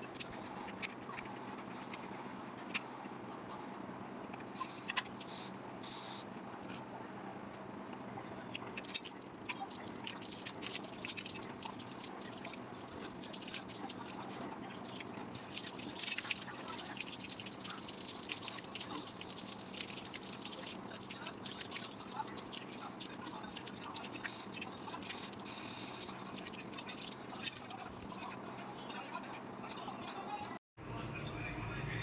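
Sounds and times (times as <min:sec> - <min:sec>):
water dripping and trickling: 0:08.3 - 0:28.4.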